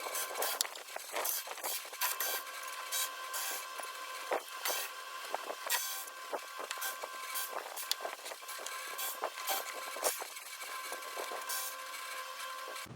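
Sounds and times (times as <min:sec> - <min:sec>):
scraping and rubbing strokes: 0:00.0 - 0:12.9.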